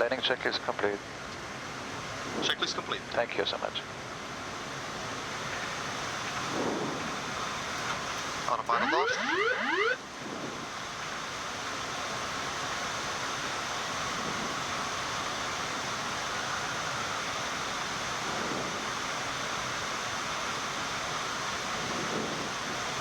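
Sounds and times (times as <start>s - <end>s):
rushing air in cockpit: 1.1s - 2.9s, 3.8s - 23.0s.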